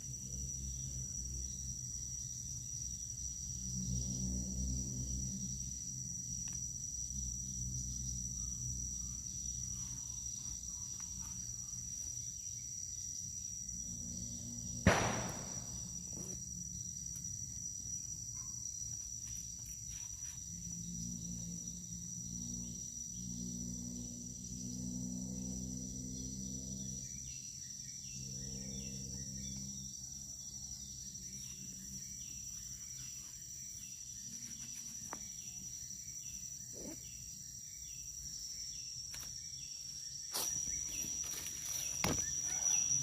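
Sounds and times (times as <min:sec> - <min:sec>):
sharp loud knock: 0:14.9 - 0:15.7
high-pitched insect buzzing: 0:31.0 - 0:43.0.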